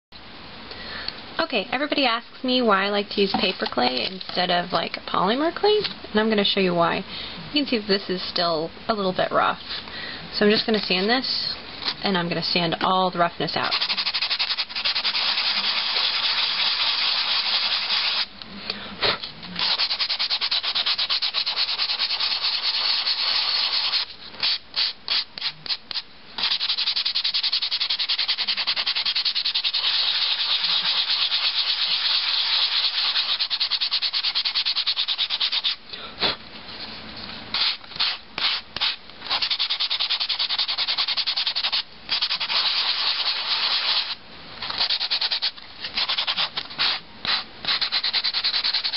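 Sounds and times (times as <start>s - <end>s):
sanding sponge scrubbing: 13.6s - 18.3s, 19.6s - 35.8s, 37.6s - 48.9s.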